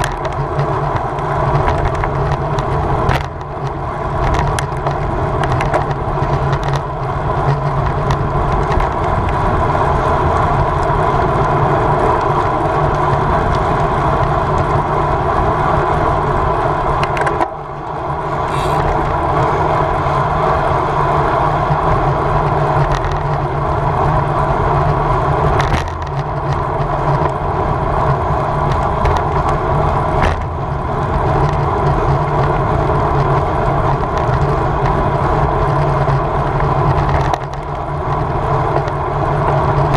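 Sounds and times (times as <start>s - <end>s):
bicycle road noise: 0.0s - 39.9s
wind rushing: 18.2s - 19.1s.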